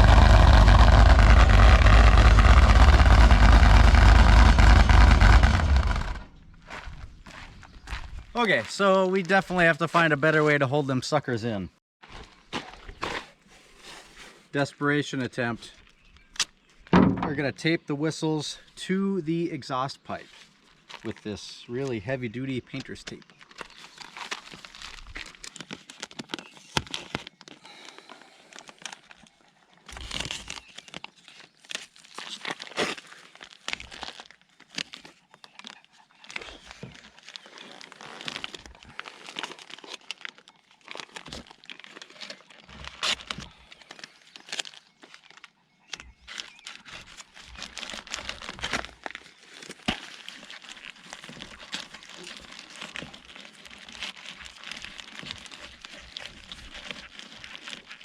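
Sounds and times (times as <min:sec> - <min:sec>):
tape pulled off roll: 0:00.0 - 0:06.3
tape crinkling and tearing: 0:00.0 - 0:07.4, 0:22.8 - 0:58.0.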